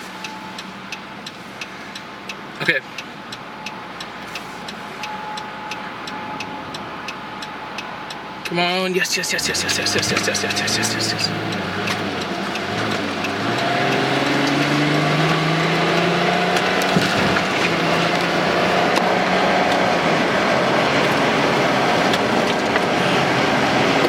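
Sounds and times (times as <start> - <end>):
road and wind noise: 0.0 - 24.0
car engine accelerating: 9.3 - 24.0.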